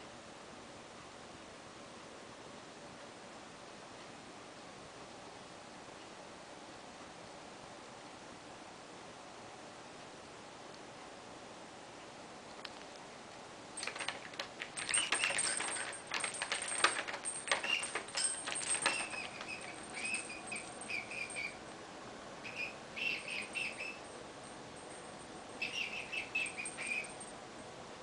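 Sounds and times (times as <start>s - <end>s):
cockatiel rattling a toy: 13.8s - 21.6s, 22.4s - 27.3s
cockatiel chirps: 19.4s - 21.6s, 22.4s - 24.0s, 25.6s - 27.1s.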